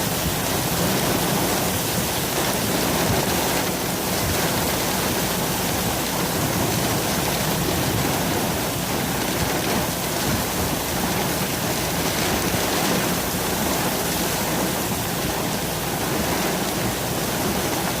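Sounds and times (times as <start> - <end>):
heavy rain hitting a car: 0.0 - 18.0.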